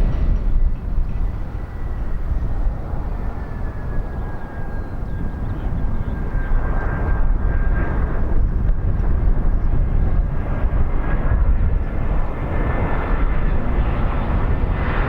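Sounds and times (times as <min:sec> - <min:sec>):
faint high whine: 0:00.0 - 0:06.6
jet engines rushing: 0:00.0 - 0:15.0.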